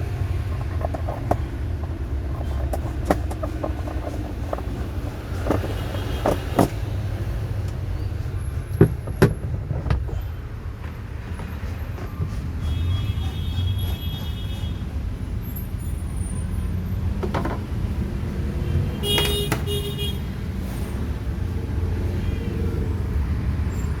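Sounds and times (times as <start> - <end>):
washing machine rumble: 0.0 - 15.5.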